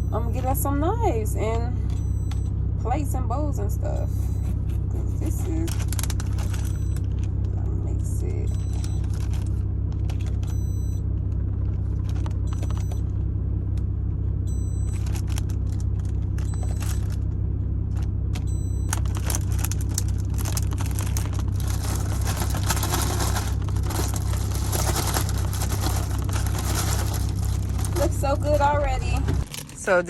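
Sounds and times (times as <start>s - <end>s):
truck engine idling: 0.0s - 30.0s.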